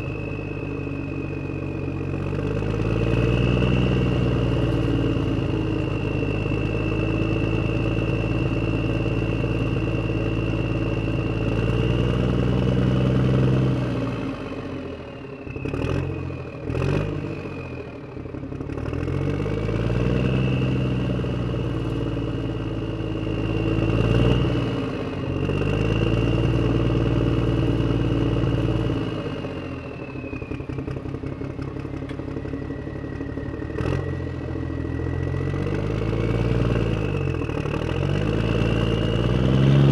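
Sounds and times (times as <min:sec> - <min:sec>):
high whine: 0:00.0 - 0:13.8, 0:29.6 - 0:39.9
engine revving: 0:00.0 - 0:39.9.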